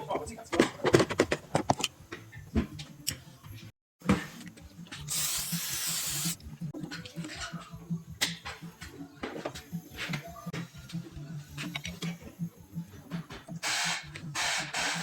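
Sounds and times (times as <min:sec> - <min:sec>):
spray hissing: 0:05.1 - 0:06.4.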